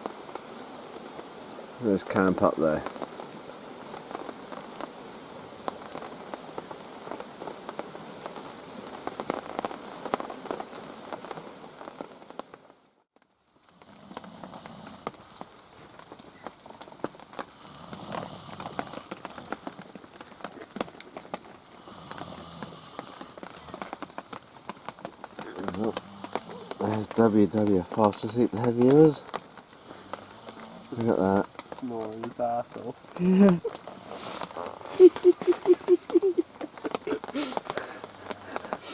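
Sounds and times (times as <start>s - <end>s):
rain on foliage: 0.0s - 38.9s
sharp drip ticks: 14.2s - 38.9s.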